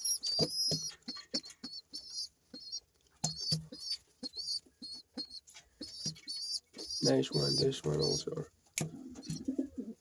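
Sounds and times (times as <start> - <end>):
young pigeons squeaking: 0.0 - 10.0.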